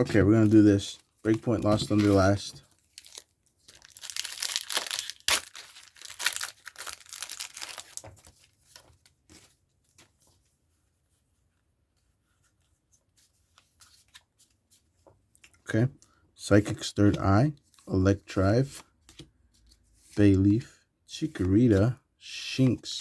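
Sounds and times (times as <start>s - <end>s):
foil pack tearing and crinkling: 3.0s - 8.0s.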